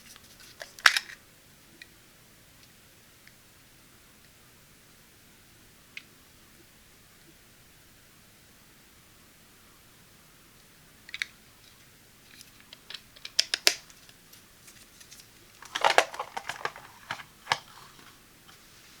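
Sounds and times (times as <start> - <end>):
plastic device clicks and taps: 12.7 - 13.9.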